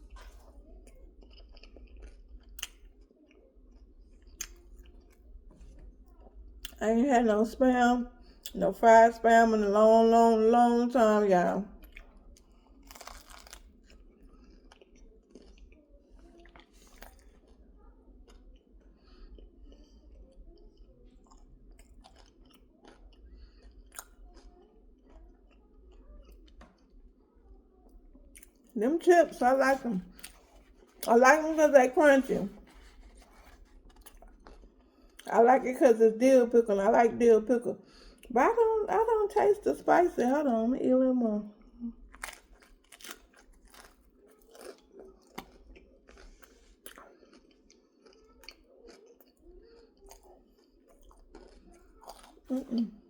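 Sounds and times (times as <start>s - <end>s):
person chewing crunchy chips: 0.0s - 6.8s, 11.8s - 15.8s, 16.4s - 17.6s, 21.1s - 25.5s, 30.1s - 31.2s, 32.5s - 35.3s, 42.0s - 53.0s.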